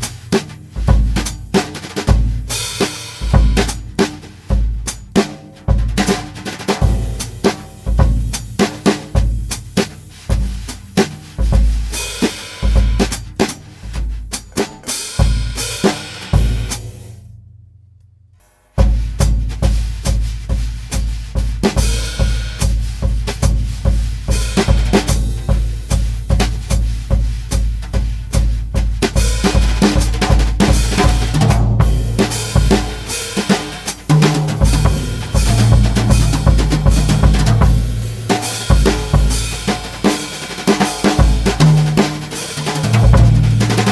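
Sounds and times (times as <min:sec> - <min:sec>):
bass drum thumps: 0:00.0 - 0:12.0, 0:12.6 - 0:17.7, 0:18.8 - 0:43.9
snare brush strokes: 0:29.4 - 0:43.9
ringing cymbals: 0:31.8 - 0:43.9.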